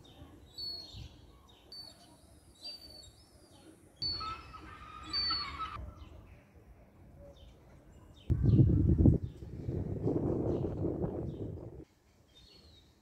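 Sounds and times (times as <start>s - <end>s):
outdoor background noise: 0.0s - 13.0s
high bird chirps: 4.0s - 5.8s.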